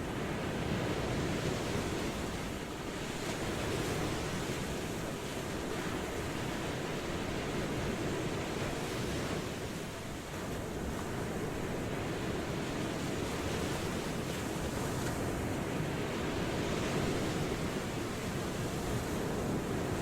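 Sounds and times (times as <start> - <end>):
ocean waves washing in: 0.0 - 20.0.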